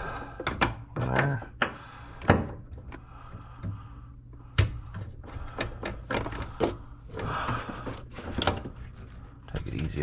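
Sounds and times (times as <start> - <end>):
steady low hum: 0.0 - 10.0
hand tools clicking and knocking: 0.2 - 3.9.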